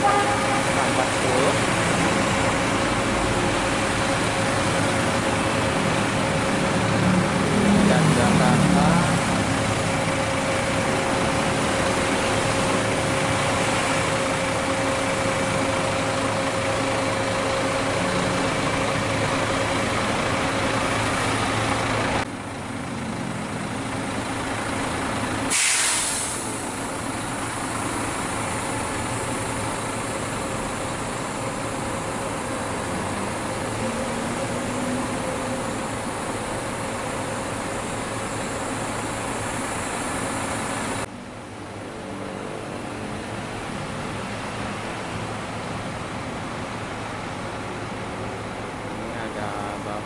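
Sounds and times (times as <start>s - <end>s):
bus engine idling: 0.0s - 50.0s
air brakes hissing: 25.4s - 26.8s.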